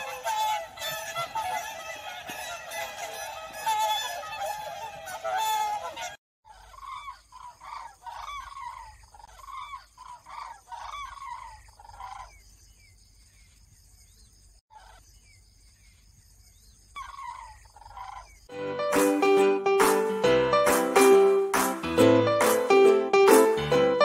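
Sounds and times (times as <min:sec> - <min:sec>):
waterbirds calling loudly: 0:00.0 - 0:12.4
faint high bird calls: 0:00.0 - 0:18.5.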